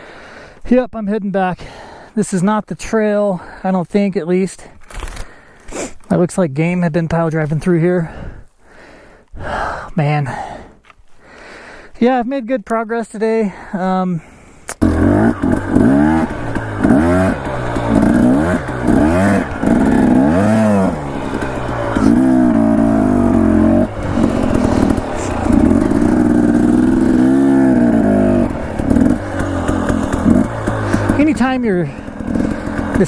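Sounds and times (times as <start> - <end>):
dirt bike engine revving: 14.8 - 33.0.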